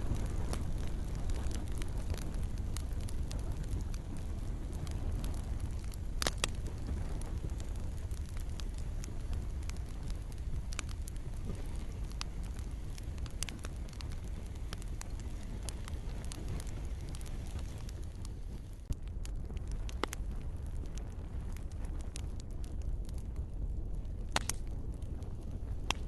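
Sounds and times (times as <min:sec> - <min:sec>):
gentle rain falling: 0:00.0 - 0:18.9
campfire crackling and popping: 0:00.0 - 0:26.0.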